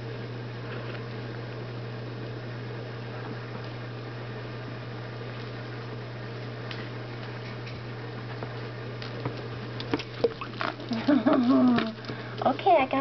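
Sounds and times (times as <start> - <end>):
steady low hum: 0.0 - 13.0
water splashes and clicks: 9.0 - 12.6
woman's voice: 11.0 - 13.0.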